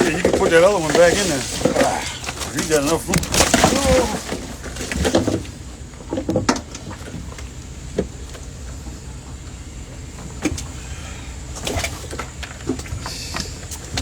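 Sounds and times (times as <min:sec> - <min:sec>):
knocks and thumps on a boat: 0:00.0 - 0:08.4.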